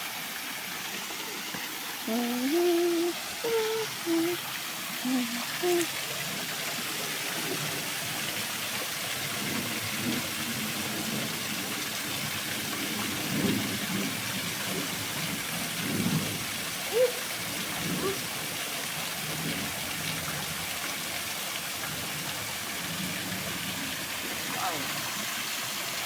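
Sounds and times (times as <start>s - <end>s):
waterfall rushing: 0.0s - 26.0s
faint low voice-like sounds: 24.4s - 25.2s.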